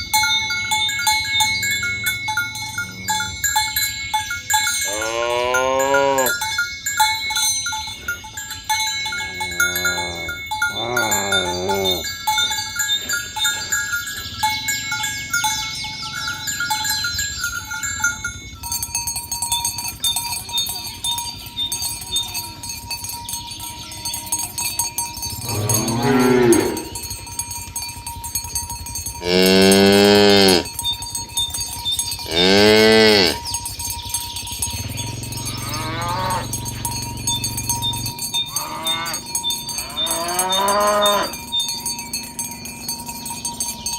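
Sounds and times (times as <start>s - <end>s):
cattle mooing: 4.9s - 6.4s, 9.1s - 12.2s, 25.4s - 27.2s, 29.2s - 30.7s, 32.2s - 33.5s, 34.8s - 41.4s.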